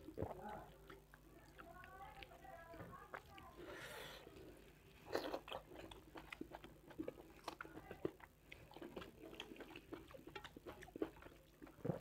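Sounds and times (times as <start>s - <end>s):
close chewing with wet clicks: 0.0s - 12.0s.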